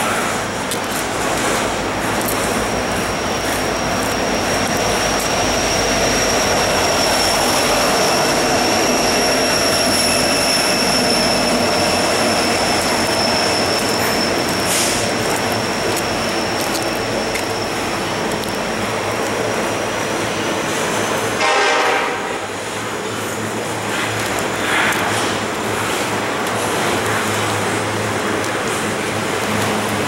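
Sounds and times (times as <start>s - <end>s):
train wheel and rail noise: 0.0s - 30.0s
high-pitched wheel squeal: 2.2s - 24.2s.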